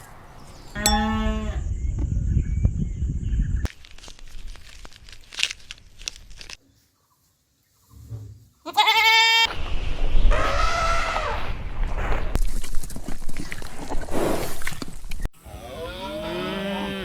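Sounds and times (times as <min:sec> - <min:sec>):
goat bleating: 0:08.7 - 0:09.5.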